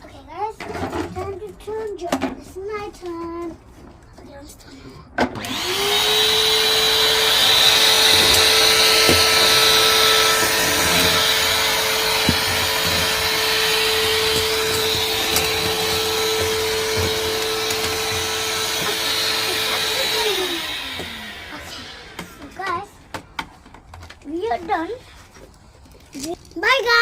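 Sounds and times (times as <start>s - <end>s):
vacuum cleaner motor: 5.3s - 22.9s.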